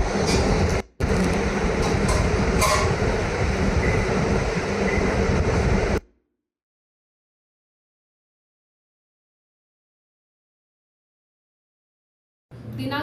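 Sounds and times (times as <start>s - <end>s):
loud steady rumbling: 0.0s - 6.0s.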